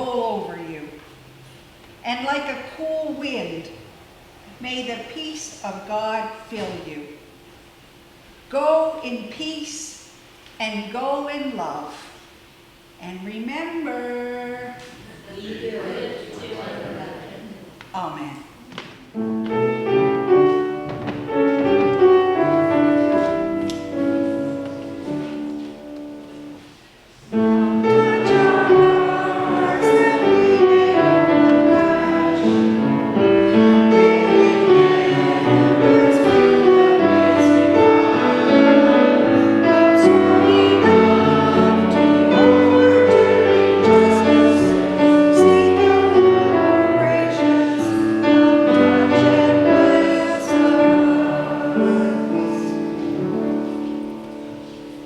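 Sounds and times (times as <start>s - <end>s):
voices singing a hymn: 15.0s - 17.8s, 27.3s - 54.8s
piano accompaniment: 19.1s - 55.0s.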